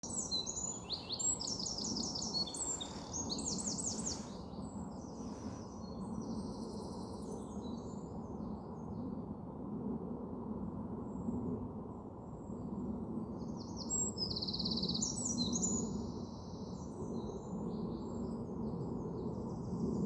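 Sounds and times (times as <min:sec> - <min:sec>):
songbirds singing: 0:00.0 - 0:08.0, 0:13.4 - 0:20.0.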